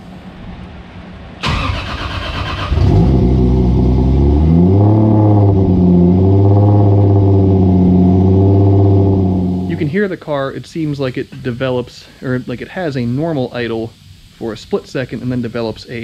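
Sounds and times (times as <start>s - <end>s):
car engine idling: 1.4s - 10.0s.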